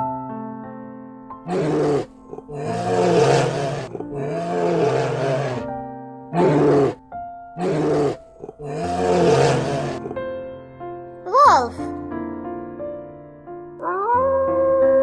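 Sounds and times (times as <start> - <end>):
background music: 0.0 - 15.0
bear growling and roaring: 1.5 - 5.7, 6.4 - 10.2, 13.8 - 15.0.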